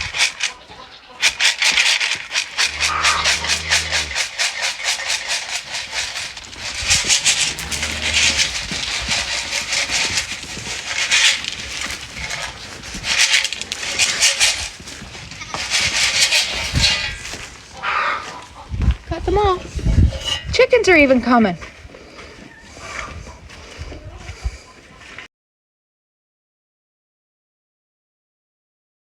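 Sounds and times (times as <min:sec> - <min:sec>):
container of feed shaken: 0:00.0 - 0:18.4
low animal calls: 0:02.5 - 0:04.5, 0:06.8 - 0:09.4.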